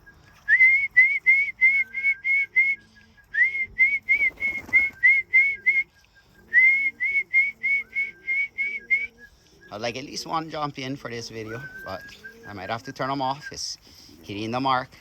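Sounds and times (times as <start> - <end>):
person whistling short notes: 0.0 - 9.7.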